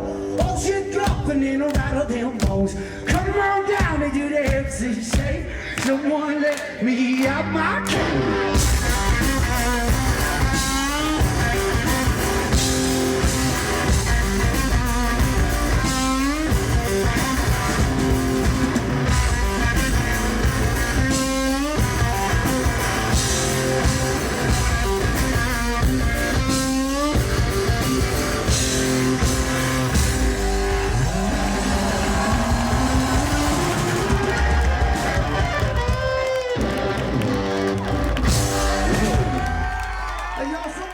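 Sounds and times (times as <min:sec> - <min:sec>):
electric guitar riff: 0:07.4 - 0:40.0
drum kit: 0:07.9 - 0:40.2.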